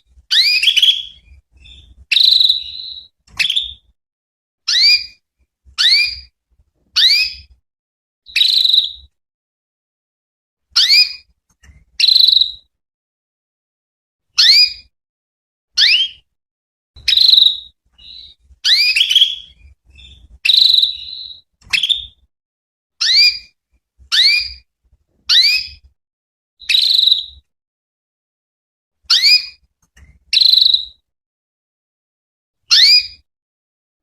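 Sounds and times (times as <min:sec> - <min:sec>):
canary chirping: 0:00.1 - 0:03.9, 0:04.7 - 0:05.2, 0:05.8 - 0:06.3, 0:07.0 - 0:07.5, 0:08.3 - 0:09.1, 0:10.8 - 0:12.7, 0:14.4 - 0:14.9, 0:15.8 - 0:16.3, 0:17.0 - 0:22.2, 0:23.0 - 0:24.7, 0:25.3 - 0:25.9, 0:26.6 - 0:27.4, 0:29.1 - 0:29.6, 0:30.2 - 0:31.0, 0:32.7 - 0:33.2.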